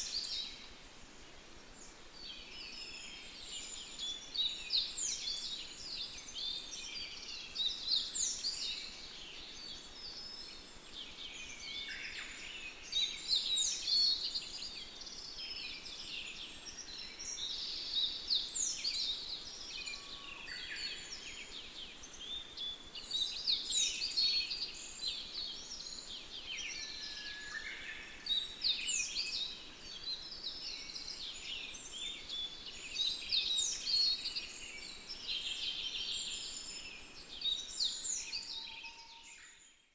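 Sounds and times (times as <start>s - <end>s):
faint steady hiss: 0.0s - 39.9s
small songbirds chirping: 0.0s - 39.9s.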